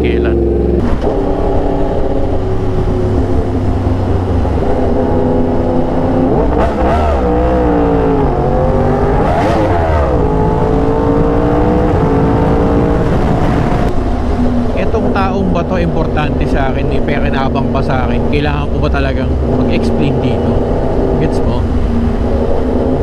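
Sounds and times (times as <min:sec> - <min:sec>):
motorcycle engine running: 0:00.0 - 0:06.5
wind rush: 0:00.8 - 0:23.0.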